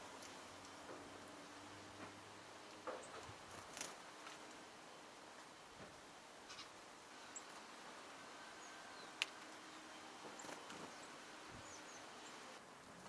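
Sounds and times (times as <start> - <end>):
quiet hiss: 0.0 - 13.0
small birds chirping: 2.6 - 5.0, 6.4 - 12.6.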